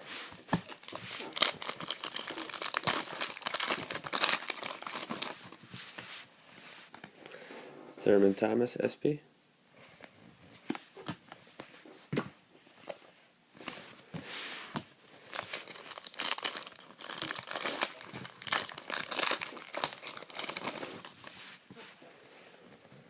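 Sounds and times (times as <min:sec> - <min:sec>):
foil pack crinkling: 0:00.6 - 0:05.6, 0:15.3 - 0:21.3.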